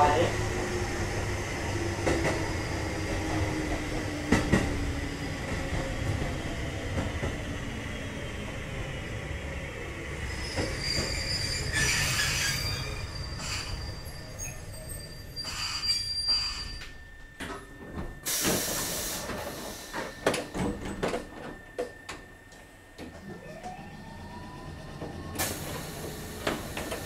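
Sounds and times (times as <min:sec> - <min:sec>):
train wheels rumbling on rail: 0:00.0 - 0:27.0
high wheel squeal: 0:10.2 - 0:17.0.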